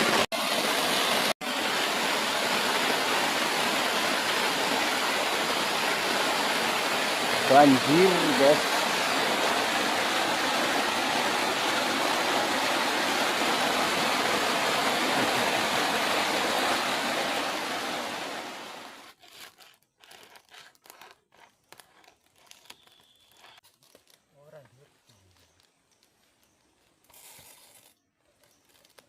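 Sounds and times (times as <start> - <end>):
heavy rain on a plastic tarp: 0.0 - 19.1
faint crackles and taps: 25.0 - 27.2.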